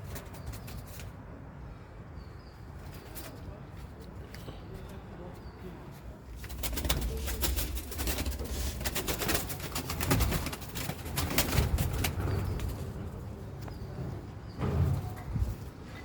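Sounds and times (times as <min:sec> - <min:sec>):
quick clicks and rustles: 0:06.4 - 0:13.0.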